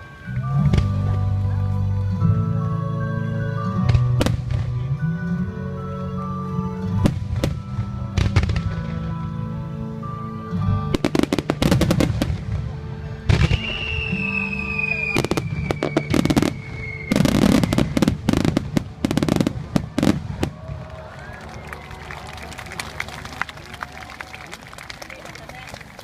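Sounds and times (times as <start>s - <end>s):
music playing: 0.0s - 26.0s
fireworks bursting with crackling: 10.9s - 23.2s.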